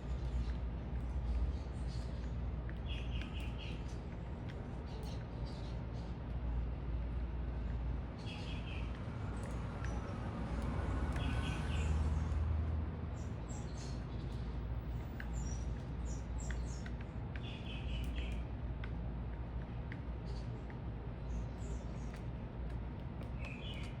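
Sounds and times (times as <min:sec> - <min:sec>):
low city rumble: 0:00.0 - 0:24.0
small birds chirping: 0:00.0 - 0:24.0.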